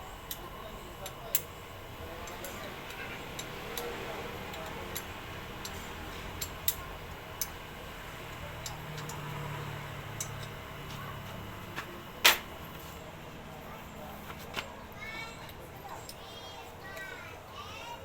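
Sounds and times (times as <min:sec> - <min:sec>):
metallic clicks and taps: 0:02.2 - 0:07.6, 0:08.3 - 0:09.5, 0:10.2 - 0:10.6.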